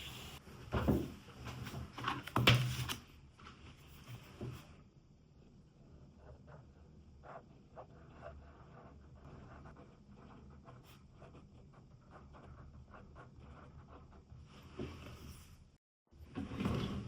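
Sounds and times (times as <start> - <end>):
pen scratching on paper: 6.0 - 14.4.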